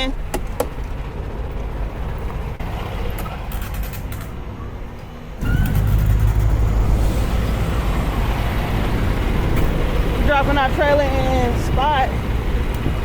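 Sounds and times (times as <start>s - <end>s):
truck diesel engine running: 0.0s - 3.5s, 4.3s - 13.0s.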